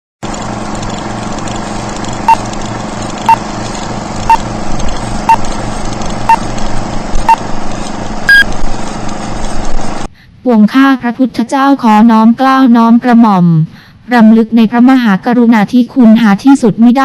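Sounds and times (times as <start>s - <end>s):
steady hum: 0.2s - 10.4s
short electronic beeps: 8.3s - 8.5s.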